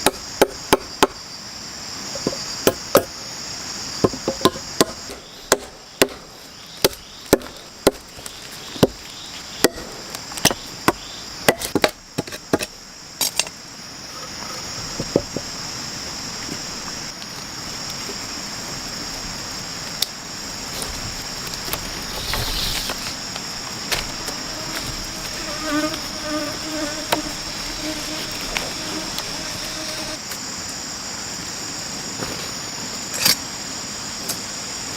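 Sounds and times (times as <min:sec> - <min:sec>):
crickets and cicadas chorus: 0:00.0 - 0:34.9
wood chopping knocks: 0:06.8 - 0:08.0.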